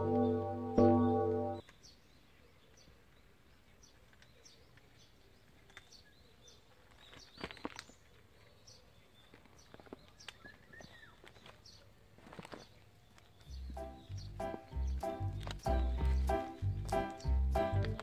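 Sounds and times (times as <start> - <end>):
small bird chirping: 12.5 - 17.8.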